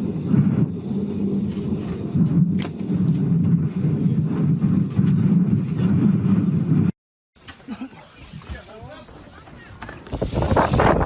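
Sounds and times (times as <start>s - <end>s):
low rough cabin rumble: 0.0s - 6.9s.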